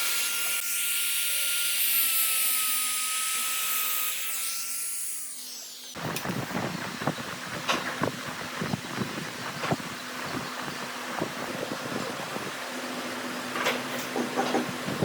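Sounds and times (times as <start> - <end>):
power tool high whine: 0.0 - 7.2.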